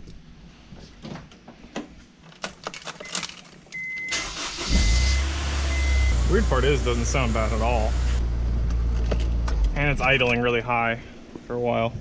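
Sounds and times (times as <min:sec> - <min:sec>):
clicks and rustles: 0:00.8 - 0:03.8
dashboard warning chime beeping: 0:03.8 - 0:06.9
car engine starting and running: 0:04.1 - 0:10.5.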